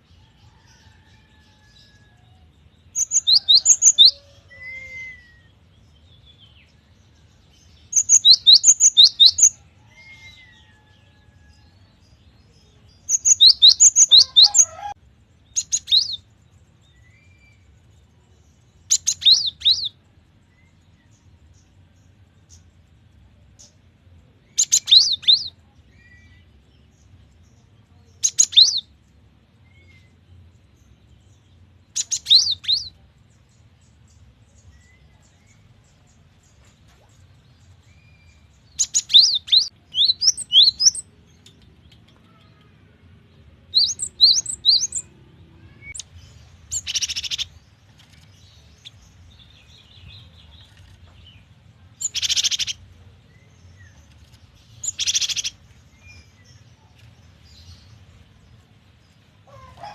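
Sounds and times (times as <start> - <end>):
harsh bird calls: 13.1 - 15.0, 43.7 - 47.7, 52.0 - 52.9.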